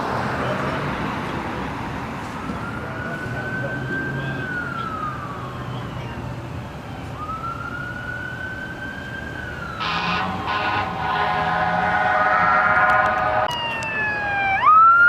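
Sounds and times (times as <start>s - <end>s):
emergency siren wailing: 2.2s - 15.0s
vehicle horn blasts: 9.8s - 13.5s.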